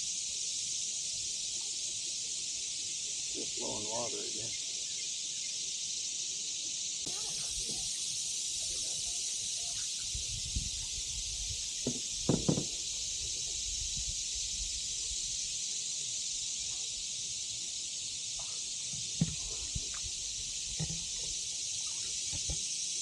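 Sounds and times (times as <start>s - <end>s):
short knocks: 11.8s - 12.8s.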